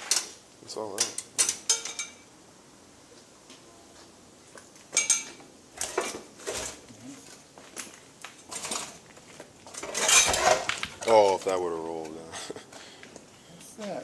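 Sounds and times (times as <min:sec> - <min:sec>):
metal parts clanking: 0:05.0 - 0:06.8, 0:08.5 - 0:09.0, 0:09.7 - 0:11.5.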